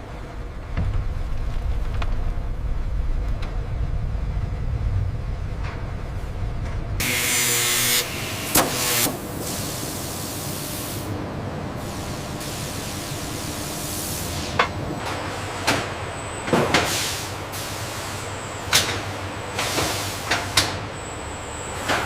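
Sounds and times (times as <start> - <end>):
mechanical hum: 0.0 - 22.0
machinery hissing: 7.0 - 22.0.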